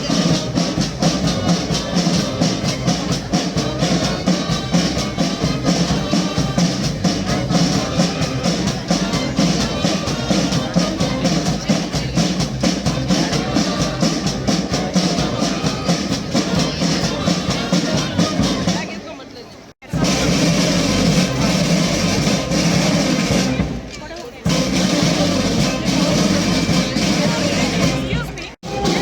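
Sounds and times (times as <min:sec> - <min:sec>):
brass band playing: 0:00.0 - 0:19.0, 0:19.8 - 0:29.0
drums keeping steady beat: 0:00.0 - 0:29.0.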